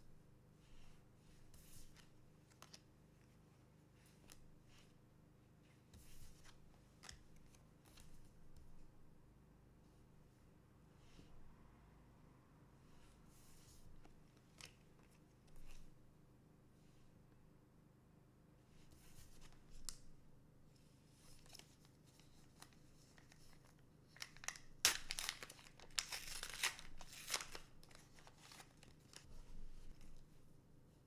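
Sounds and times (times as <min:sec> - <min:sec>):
plastic wrapper crinkling and tearing: 0:23.2 - 0:29.3.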